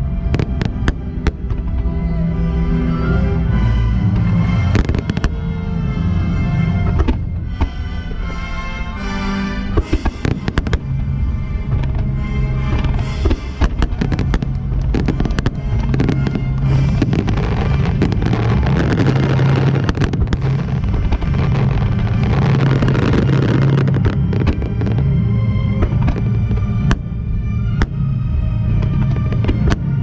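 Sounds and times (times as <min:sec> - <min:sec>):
fireworks bursting and crackling: 0:00.0 - 0:01.9, 0:04.1 - 0:05.5, 0:09.7 - 0:30.0
loud music: 0:00.0 - 0:30.0.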